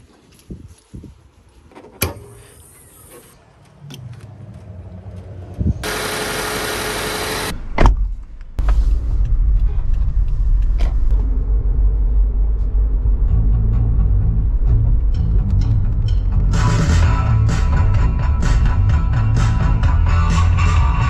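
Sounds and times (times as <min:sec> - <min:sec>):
car engine idling: 0:05.8 - 0:07.5.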